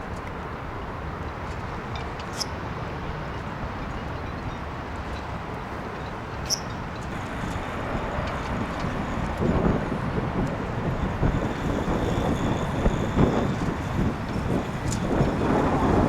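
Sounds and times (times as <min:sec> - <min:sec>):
wind buffeting microphone: 0:06.8 - 0:16.0.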